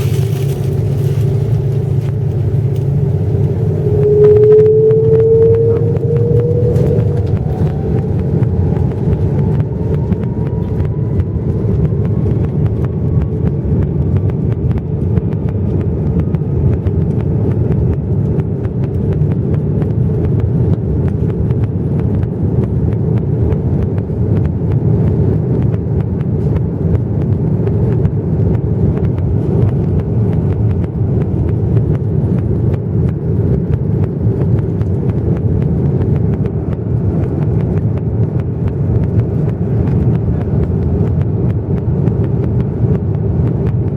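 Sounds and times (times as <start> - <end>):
jet engines and airflow rumble: 0.0 - 43.9
faint rising whine: 0.1 - 15.6.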